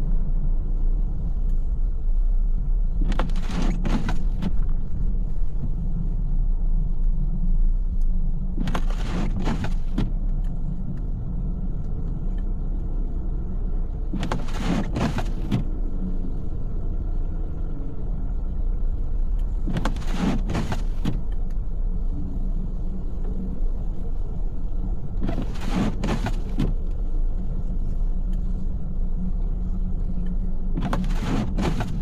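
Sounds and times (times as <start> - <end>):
car road rumble: 0.0 - 32.0
windshield wiper sweep: 3.0 - 4.6, 8.6 - 10.2, 14.1 - 15.7, 19.6 - 21.2, 25.2 - 26.8, 30.8 - 32.0.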